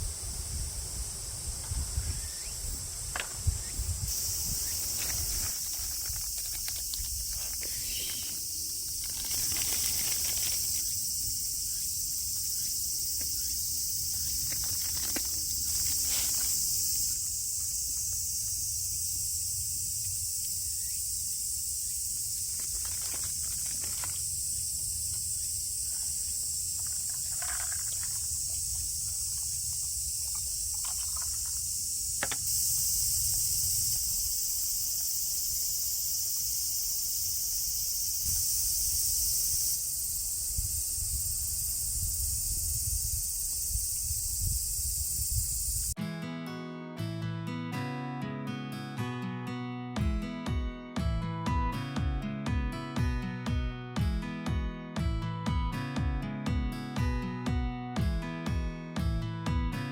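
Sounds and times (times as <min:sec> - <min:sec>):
insects droning: 0:00.0 - 0:46.0.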